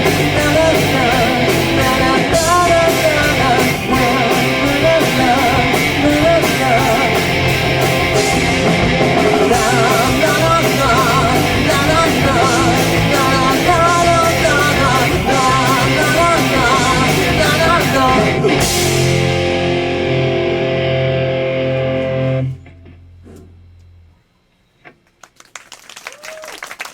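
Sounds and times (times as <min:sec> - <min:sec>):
lead singer: 0:00.0 - 0:19.6
live rock band playing: 0:00.0 - 0:22.5.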